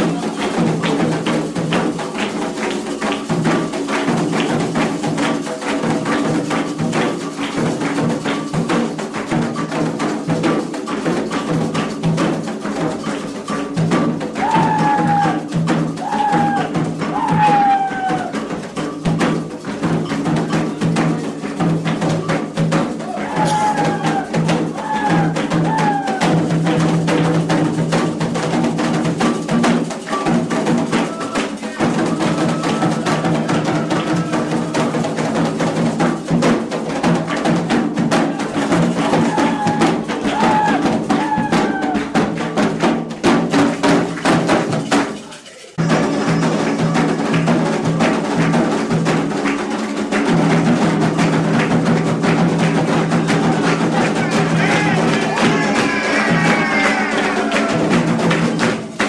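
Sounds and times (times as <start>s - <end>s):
hand drums beating: 0.0s - 59.0s
chorus of voices chanting: 14.4s - 18.4s, 22.9s - 26.6s, 30.9s - 35.7s, 38.2s - 42.2s, 53.2s - 58.4s.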